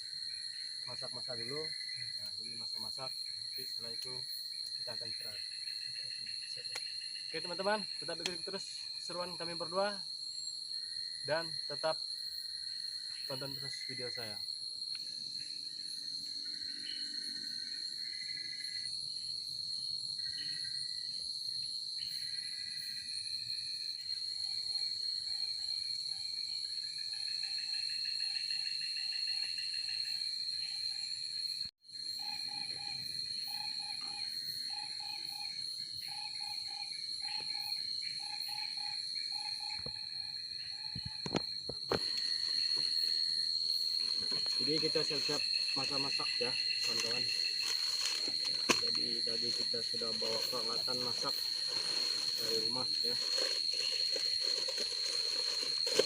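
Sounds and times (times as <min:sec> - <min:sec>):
crickets trilling: 0:00.0 - 0:56.0
insect short chirps: 0:00.0 - 0:56.0.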